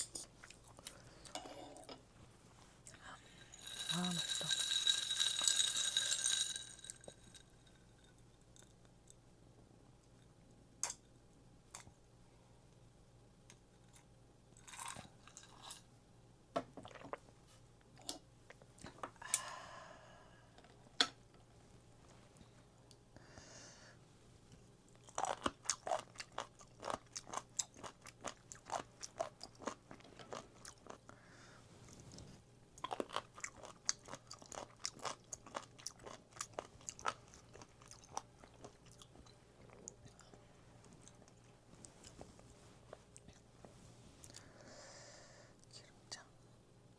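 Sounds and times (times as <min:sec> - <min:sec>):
chewing and crunching food: 0:24.9 - 0:31.2, 0:31.9 - 0:42.4.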